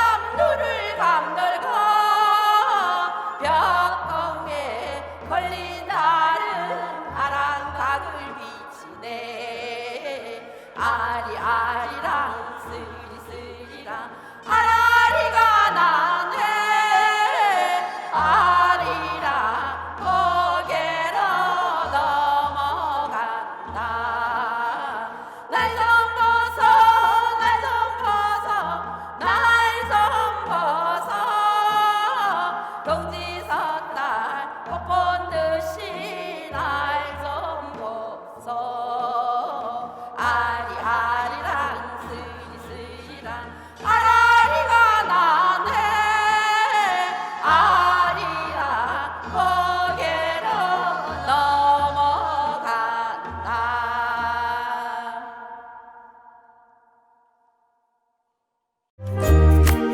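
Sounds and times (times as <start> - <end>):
folk song with vibrato: 0.0 - 57.2, 59.0 - 59.9
instrumental accompaniment: 59.0 - 59.9.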